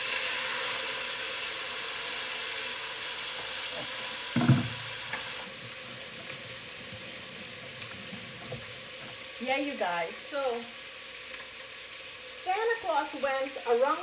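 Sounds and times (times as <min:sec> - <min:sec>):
chicken sizzling in hot oil: 0:00.0 - 0:14.0
brief thump: 0:04.4 - 0:04.9.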